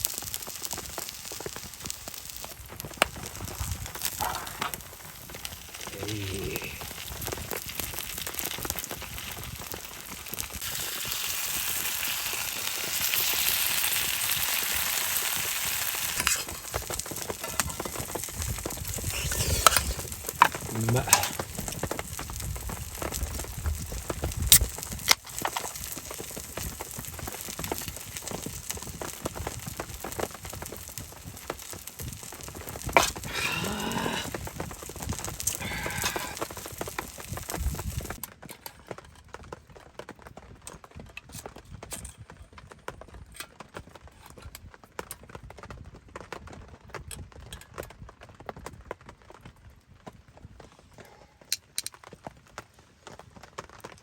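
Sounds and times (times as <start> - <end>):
food sizzling in a pan: 0.0 - 38.2.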